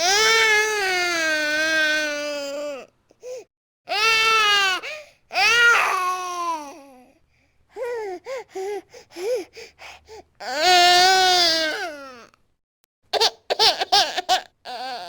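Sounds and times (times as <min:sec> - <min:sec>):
infant crying: 0:00.0 - 0:07.1, 0:10.4 - 0:12.3, 0:13.2 - 0:15.0.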